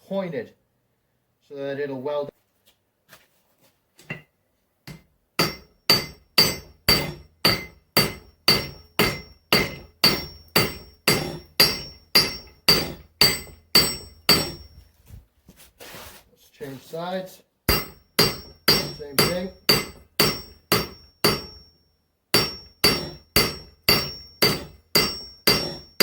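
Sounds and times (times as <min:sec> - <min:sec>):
hammer ringing on anvil: 0:04.9 - 0:14.8, 0:17.7 - 0:21.8, 0:22.4 - 0:26.0.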